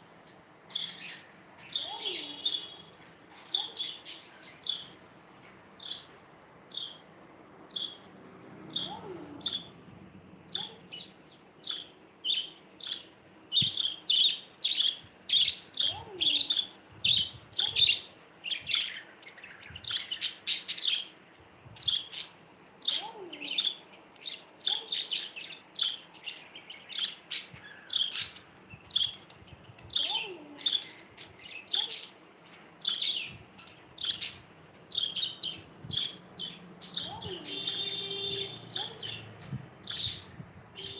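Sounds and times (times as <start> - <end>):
budgerigars chirping: 5.8 - 6.1, 7.8 - 8.0, 10.5 - 19.0, 23.6 - 29.2, 34.0 - 40.9.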